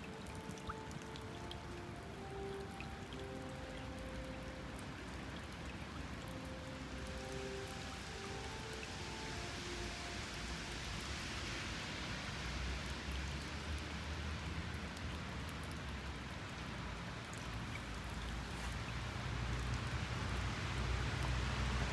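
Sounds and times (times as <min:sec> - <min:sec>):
steady hiss of water: 0:00.0 - 0:21.9.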